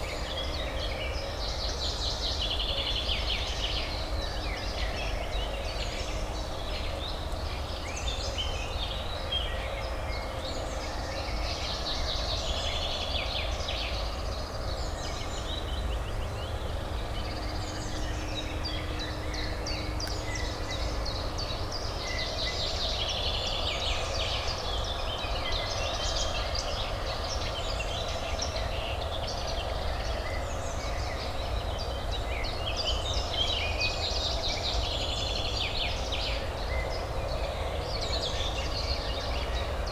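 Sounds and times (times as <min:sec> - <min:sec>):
distant city traffic hum: 0:00.0 - 0:39.9.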